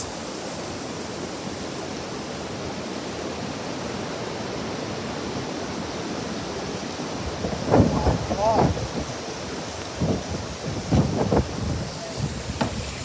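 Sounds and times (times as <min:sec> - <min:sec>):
strong gusting wind: 0:00.0 - 0:13.0.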